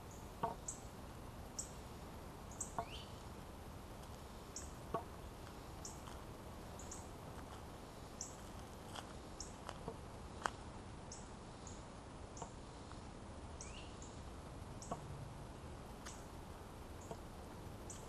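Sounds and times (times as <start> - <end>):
bird chirping: 0.0 - 0.9, 2.5 - 3.2, 4.5 - 6.1, 6.7 - 7.1, 8.2 - 8.4, 11.1 - 11.8, 13.6 - 15.1, 17.0 - 18.0.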